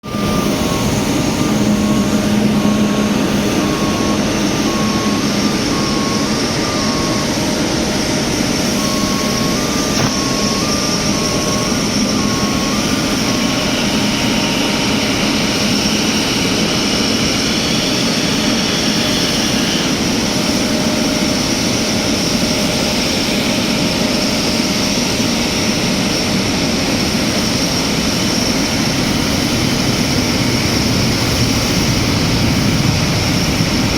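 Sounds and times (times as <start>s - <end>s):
alternating two-tone beep: 0.0s - 15.4s
jet engines running: 0.0s - 33.9s.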